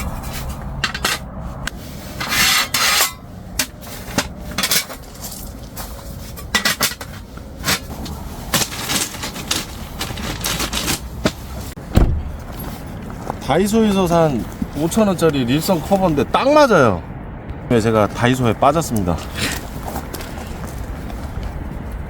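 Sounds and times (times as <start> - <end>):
scraping and rustling: 0.0 - 13.5
camping gear clicking and clattering: 0.0 - 16.0, 18.8 - 22.0.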